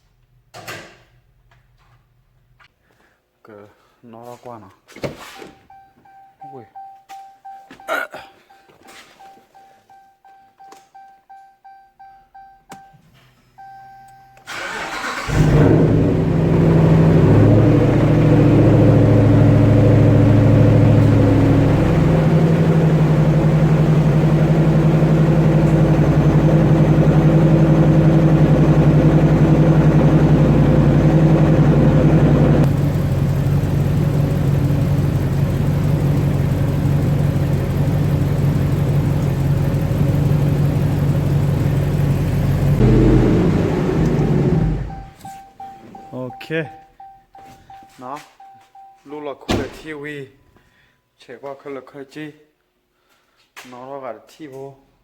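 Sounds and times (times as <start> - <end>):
short beep: 5.4 - 14.5, 44.8 - 49.2
engine cranking and idling: 14.4 - 45.2.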